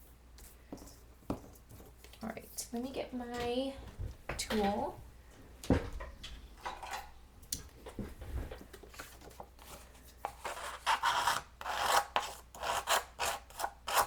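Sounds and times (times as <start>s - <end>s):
tool scraping paper edge: 9.7s - 14.0s.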